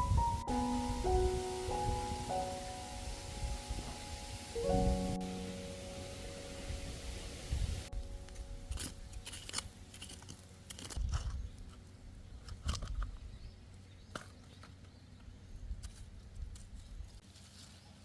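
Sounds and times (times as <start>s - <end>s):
small clicks and crunches: 8.3s - 13.2s.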